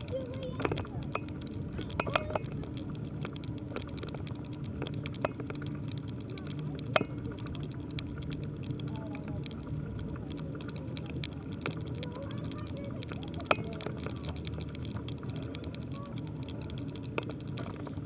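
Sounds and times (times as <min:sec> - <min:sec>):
bicycle clicks and rattles: 0:00.0 - 0:18.0
bicycle riding rumble: 0:00.0 - 0:18.0.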